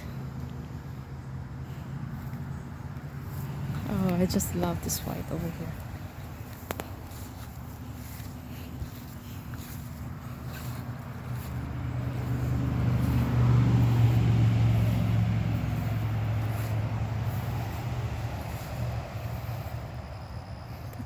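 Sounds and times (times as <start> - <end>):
passing vehicle engine hum: 0.0 - 21.0.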